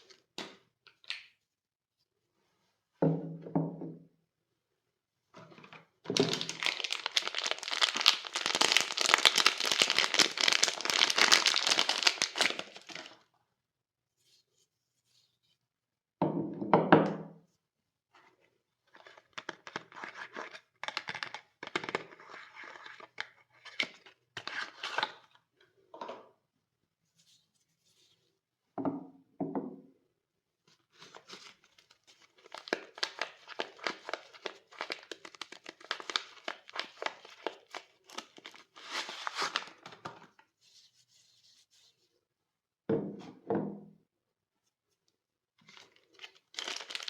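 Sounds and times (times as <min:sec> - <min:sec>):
wrappers crinkling and tearing: 0:06.2 - 0:13.2, 0:31.7 - 0:39.8, 0:45.6 - 0:47.0.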